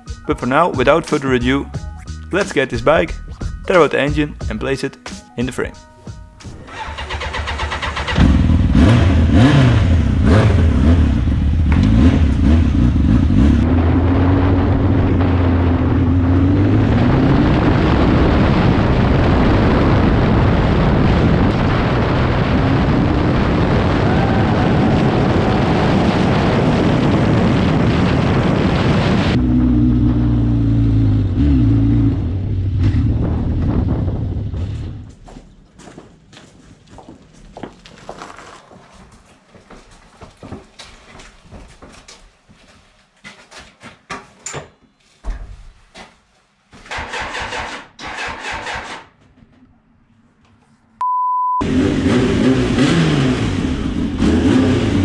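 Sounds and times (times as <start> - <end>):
motorcycle engine revving: 6.6 - 20.0, 21.5 - 35.1, 51.6 - 55.0
wind rush on microphone: 13.6 - 29.8, 32.3 - 35.2.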